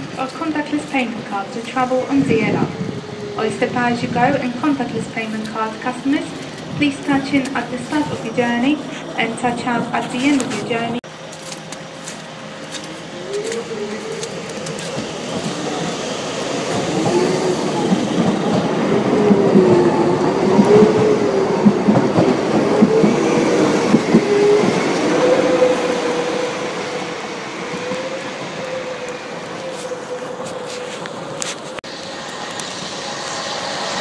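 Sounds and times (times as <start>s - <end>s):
train wavering whine: 0.0s - 34.0s
wheels clicking over rail joints: 4.1s - 25.8s.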